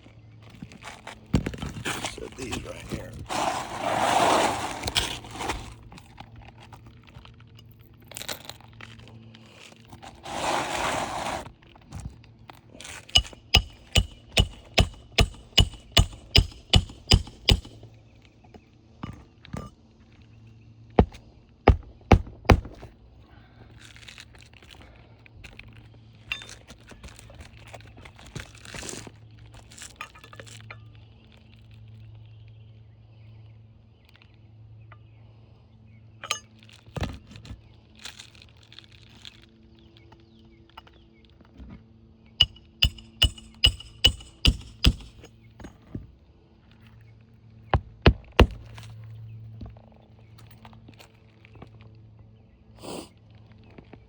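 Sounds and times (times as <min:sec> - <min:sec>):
hammer blows on roof nails: 0:13.1 - 0:17.8, 0:21.0 - 0:22.9, 0:42.4 - 0:45.3, 0:47.8 - 0:48.7.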